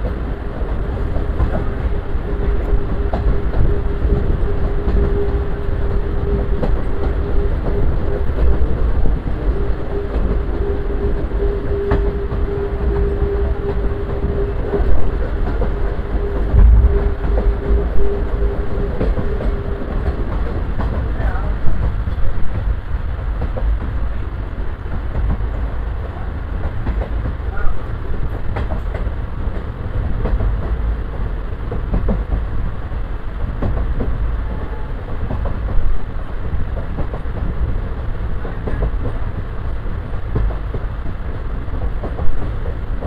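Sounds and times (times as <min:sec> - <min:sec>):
track clicks and knocks: 0:00.0 - 0:22.7
train wheels rumbling on rail: 0:00.0 - 0:43.0.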